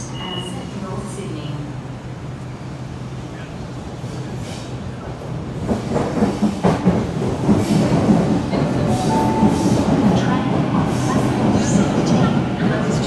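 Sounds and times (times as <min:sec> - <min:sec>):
train rumbling and clattering: 0:00.0 - 0:13.0
brief high tone: 0:08.9 - 0:09.9.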